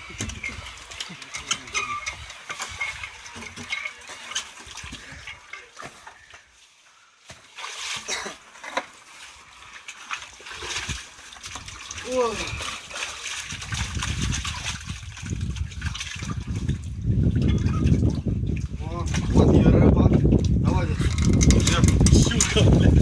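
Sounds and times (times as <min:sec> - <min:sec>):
water splashing: 0:00.0 - 0:23.0
knocks and clatter: 0:21.0 - 0:23.0.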